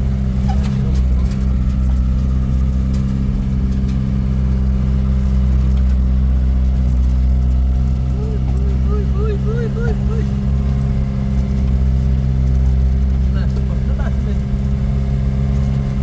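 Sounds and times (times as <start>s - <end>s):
car engine running steadily: 0.0s - 16.0s.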